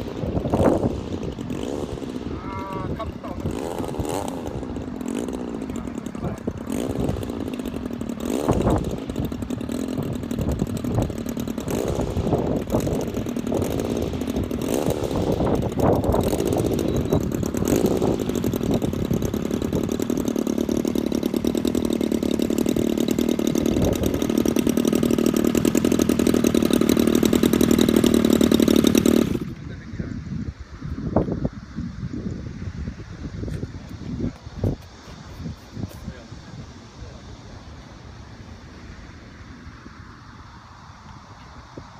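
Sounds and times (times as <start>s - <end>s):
model plane engine running: 0.0s - 29.8s.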